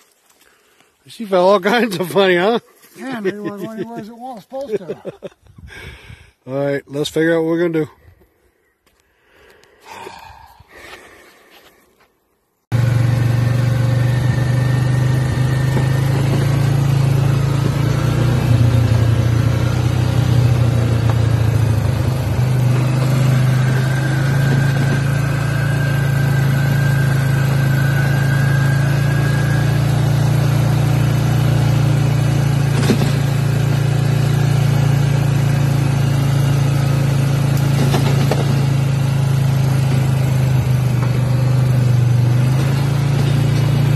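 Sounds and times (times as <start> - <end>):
vehicle engine humming: 12.6 - 43.9.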